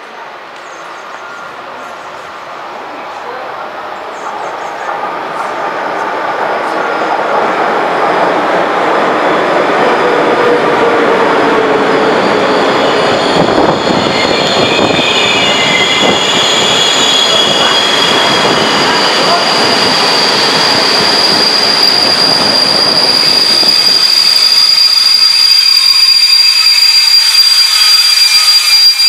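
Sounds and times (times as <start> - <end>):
train wheels rolling on rails: 0.0 - 29.0
train wheels squealing: 10.8 - 29.0.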